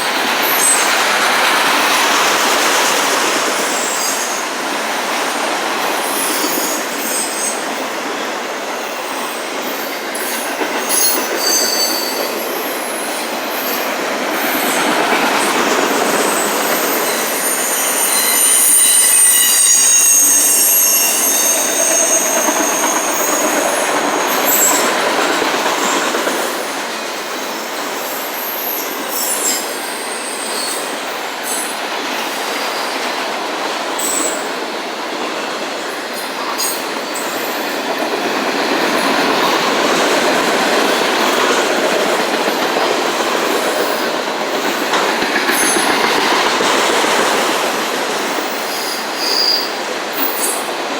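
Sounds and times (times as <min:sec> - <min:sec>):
freight train rolling past: 0:00.0 - 0:50.9
wheel squeal: 0:09.8 - 0:13.9, 0:15.7 - 0:26.0, 0:48.4 - 0:50.7.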